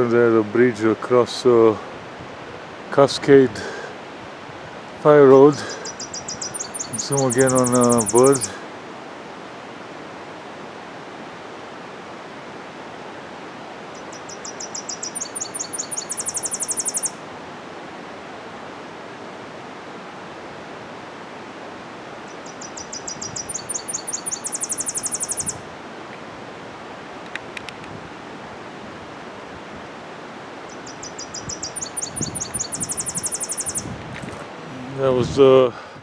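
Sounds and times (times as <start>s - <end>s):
bird singing trill: 5.8s - 8.6s, 14.0s - 17.2s, 22.3s - 25.6s, 30.7s - 33.9s.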